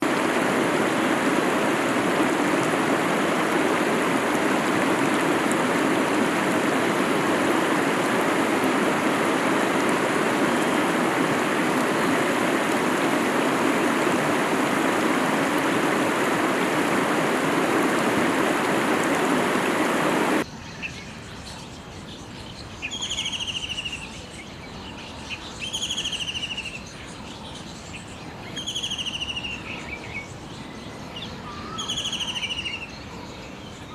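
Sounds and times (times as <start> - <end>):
rushing water: 0.0 - 20.5.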